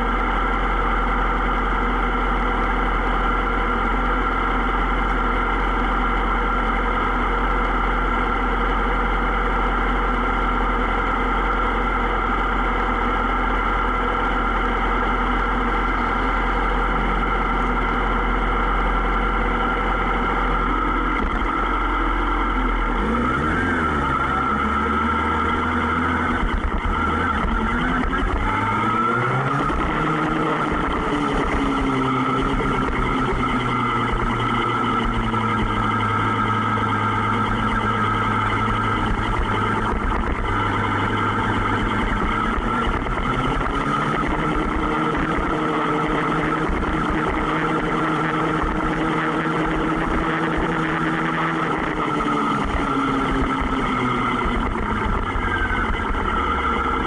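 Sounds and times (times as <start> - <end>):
motorbike engines revving: 14.4 - 57.0.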